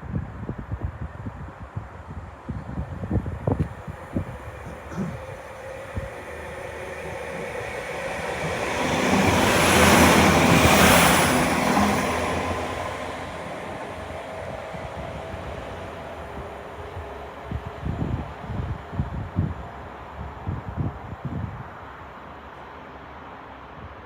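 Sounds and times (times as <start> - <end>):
diesel train engines: 3.0 - 20.4
train wheels rushing on rail: 3.0 - 24.0.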